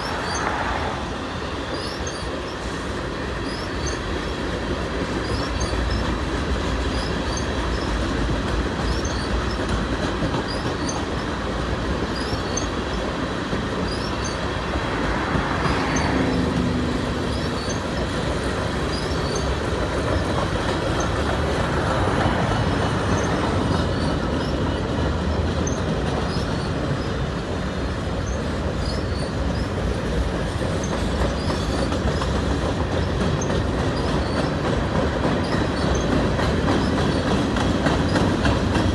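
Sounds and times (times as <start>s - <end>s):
faint wheel squeal: 0.0s - 4.1s, 13.8s - 21.1s
freight train cars rolling: 0.0s - 38.9s
wheels clicking over rail joints: 0.1s - 38.9s.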